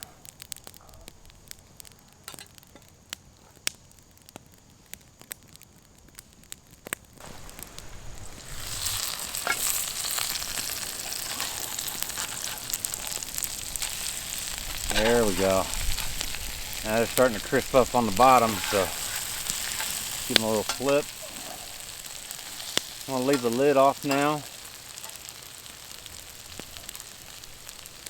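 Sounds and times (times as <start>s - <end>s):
potatoes sizzling in skillet: 6.3s - 28.0s
oil popping: 7.2s - 28.0s.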